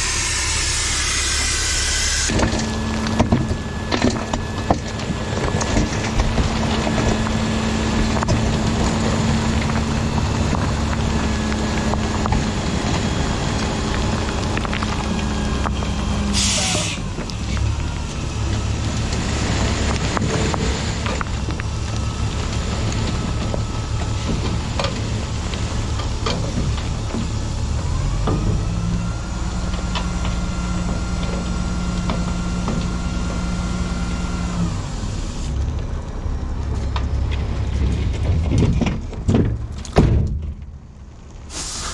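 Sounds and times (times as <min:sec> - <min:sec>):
diesel truck engine rumbling: 0:00.0 - 0:41.9
air hiss: 0:16.4 - 0:17.0, 0:41.5 - 0:41.9.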